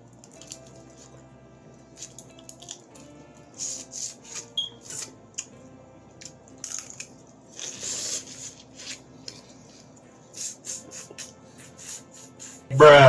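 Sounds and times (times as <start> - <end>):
wet hiss: 10.3 - 12.7.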